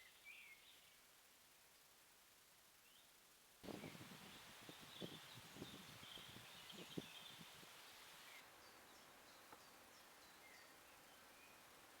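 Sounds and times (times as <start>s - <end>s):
steady hiss: 0.0s - 12.0s
faint bird chirps: 3.7s - 11.7s.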